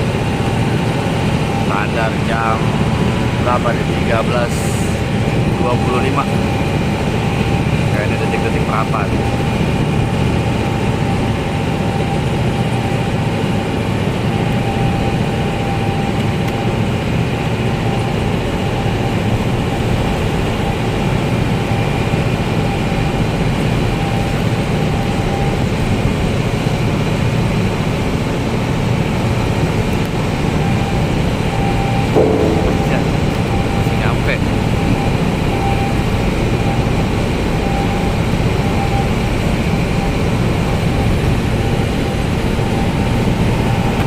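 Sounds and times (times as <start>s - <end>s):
thin steady whine: 32.2s - 34.7s.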